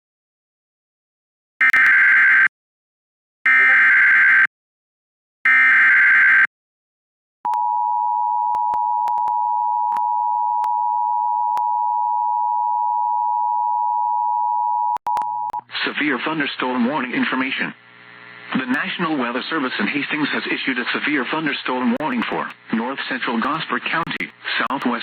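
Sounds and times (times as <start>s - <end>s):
two-tone alert signal: 3.5s - 4.0s.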